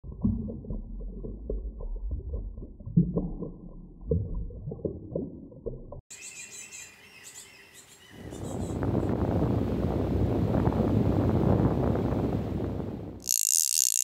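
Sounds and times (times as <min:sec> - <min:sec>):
birds chirping: 0:06.1 - 0:08.9.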